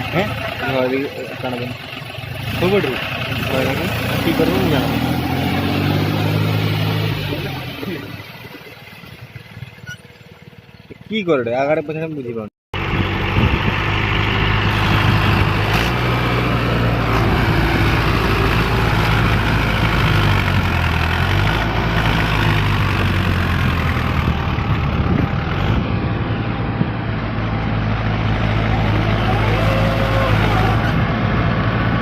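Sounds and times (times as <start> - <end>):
diesel tractor engine straining: 0.0 - 32.0.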